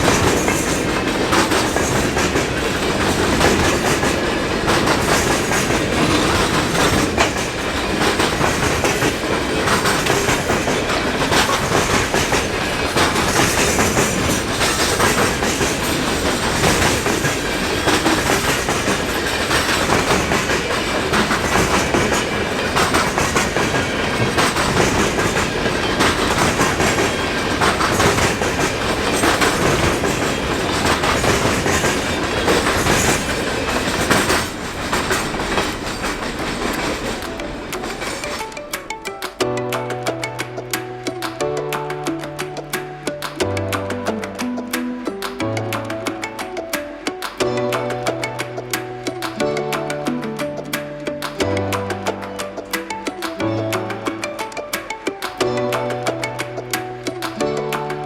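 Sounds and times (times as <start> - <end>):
train wheels rumbling on rails: 0.0 - 39.4
wheels clicking over rail joints: 0.0 - 58.0.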